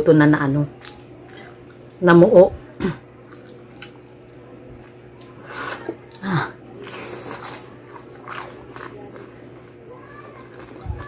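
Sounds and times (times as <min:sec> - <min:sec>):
chewing crispy food: 0:00.7 - 0:02.0, 0:03.2 - 0:04.4, 0:06.0 - 0:11.0.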